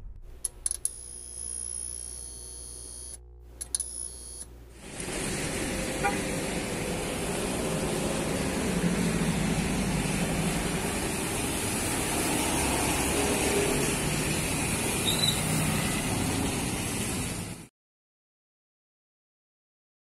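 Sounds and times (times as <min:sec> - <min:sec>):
vehicle engine humming: 0:04.5 - 0:17.7
traffic noise hiss: 0:04.8 - 0:17.7.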